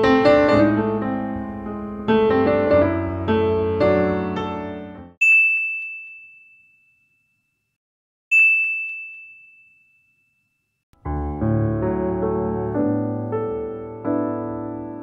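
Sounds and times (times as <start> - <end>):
piano music: 0.0 - 5.2, 11.0 - 15.0
high bell-like ding: 5.2 - 7.4, 8.3 - 10.6.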